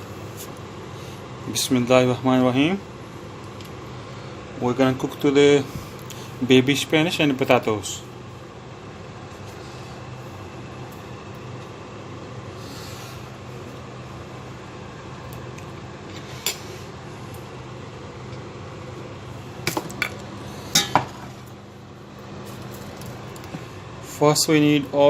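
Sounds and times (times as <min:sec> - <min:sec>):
steady background hum: 0:00.0 - 0:25.0
dishes and utensils clinking: 0:20.8 - 0:21.2.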